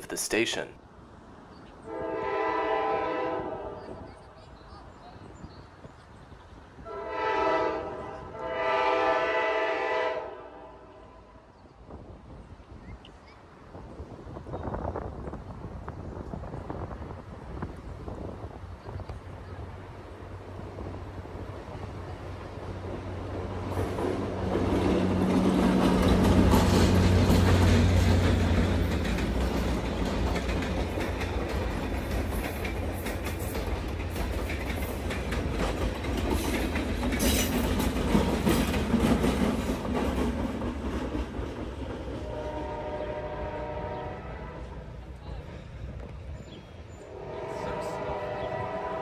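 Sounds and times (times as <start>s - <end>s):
diesel locomotive engines droning: 1.4s - 12.6s, 13.5s - 49.0s
train horn: 1.8s - 4.1s, 6.8s - 11.4s, 42.2s - 44.8s, 47.0s - 49.0s
wheels clicking over rail joints: 23.6s - 42.2s.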